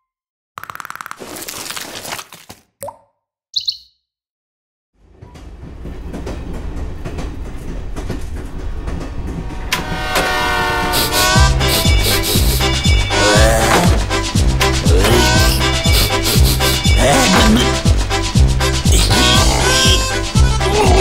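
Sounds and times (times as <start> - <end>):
short high chirp: 3.6 - 4.0
train rumbling on rails: 5.0 - 21.0
train horn: 9.3 - 14.3, 15.0 - 17.8.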